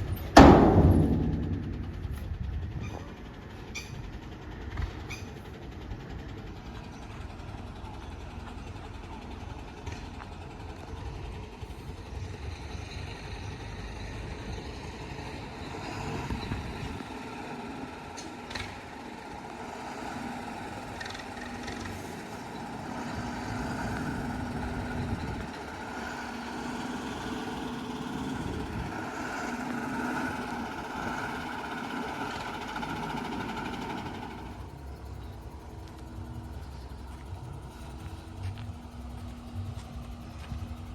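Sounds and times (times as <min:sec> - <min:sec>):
diesel engine revving: 0:00.0 - 0:40.9
sharp knock: 0:00.4 - 0:02.3.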